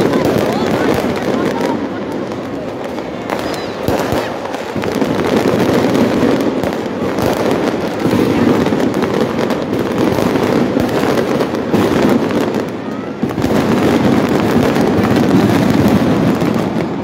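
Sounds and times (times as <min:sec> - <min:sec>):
fireworks crackling and banging: 0:00.0 - 0:17.0
large outdoor crowd: 0:00.0 - 0:17.0.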